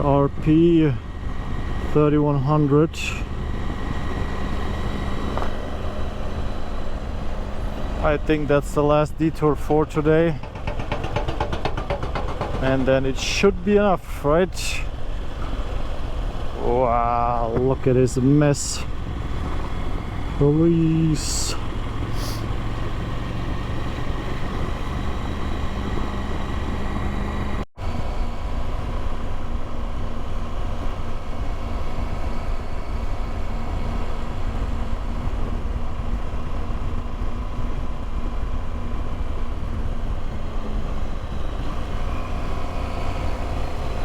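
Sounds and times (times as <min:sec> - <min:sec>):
motorcycle engine running: 0:10.2 - 0:13.1
wind noise: 0:21.3 - 0:44.0.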